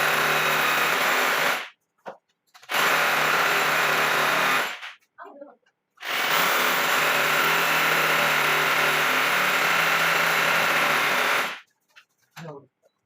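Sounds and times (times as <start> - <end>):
electric power drill running: 2.7 - 4.9, 6.0 - 11.6.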